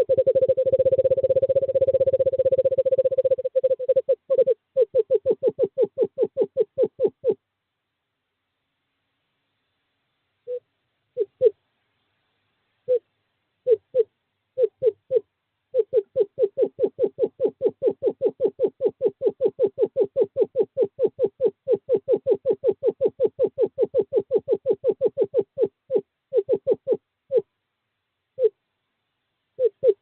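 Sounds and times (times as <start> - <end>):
screech owl hooting: 0.0 - 7.4, 13.6 - 27.4, 28.4 - 28.6, 29.6 - 30.0.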